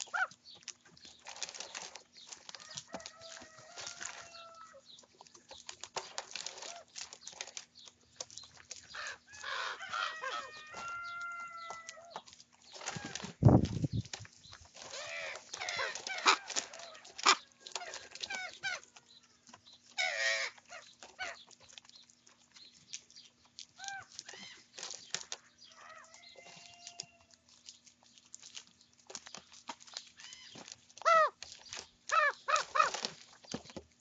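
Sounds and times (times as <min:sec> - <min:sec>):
ravens croaking and squawking: 0:00.0 - 0:00.4, 0:02.8 - 0:04.9, 0:08.8 - 0:13.4, 0:14.8 - 0:21.6, 0:23.8 - 0:24.7, 0:30.2 - 0:31.4, 0:32.1 - 0:33.2.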